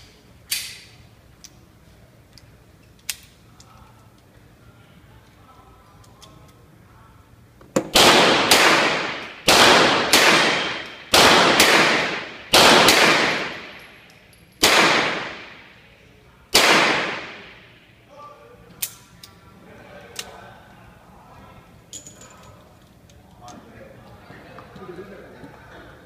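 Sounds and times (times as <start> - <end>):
revolver gunshots echoing: 7.8 - 14.0, 14.6 - 15.8, 16.5 - 17.8.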